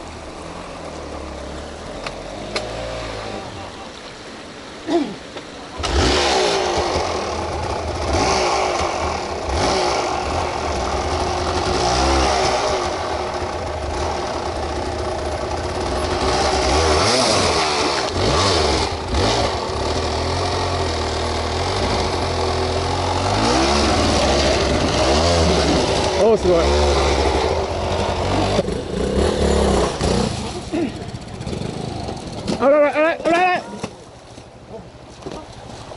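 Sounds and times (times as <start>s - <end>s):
off-road motorcycle engine revving: 0.0s - 33.6s.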